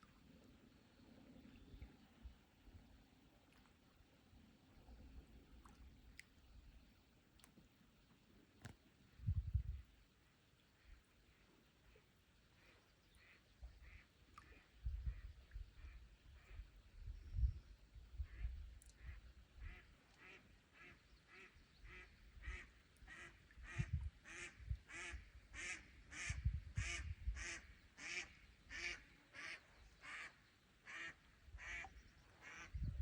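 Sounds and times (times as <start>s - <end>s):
wind thumps on microphone: 9.2s - 9.8s, 23.6s - 24.9s, 32.7s - 33.0s.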